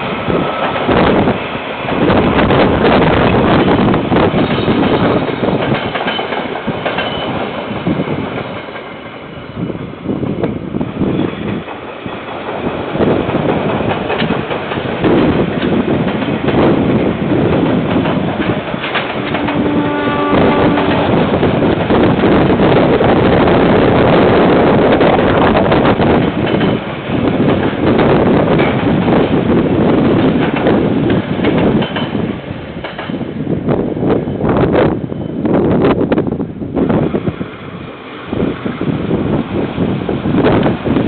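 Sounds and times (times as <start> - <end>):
train wheels clattering on rails: 0.0 - 9.8, 10.4 - 35.9.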